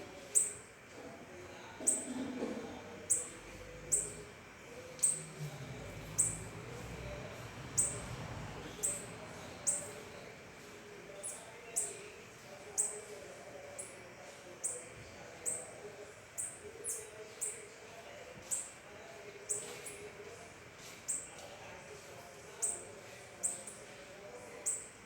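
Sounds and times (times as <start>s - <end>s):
faint background murmur: 0.0s - 25.0s
small bird chirping: 0.3s - 0.6s, 1.9s - 2.1s, 3.1s - 4.2s, 5.0s - 5.4s, 6.0s - 6.5s, 7.7s - 10.1s, 11.2s - 12.1s, 12.7s - 13.1s, 14.6s - 14.8s, 15.4s - 15.8s, 16.4s - 17.7s, 18.4s - 18.8s, 19.5s - 20.1s, 21.1s - 21.3s, 22.6s - 23.9s, 24.6s - 24.9s.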